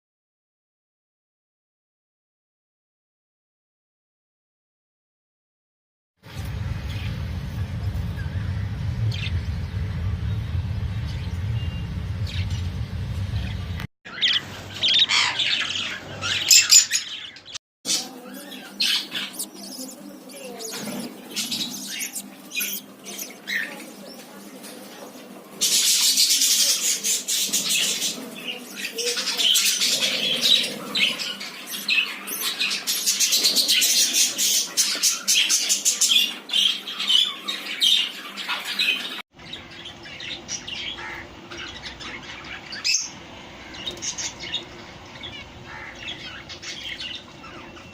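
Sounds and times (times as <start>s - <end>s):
budgies chattering and squawking: 9.1s - 9.5s, 13.3s - 47.9s.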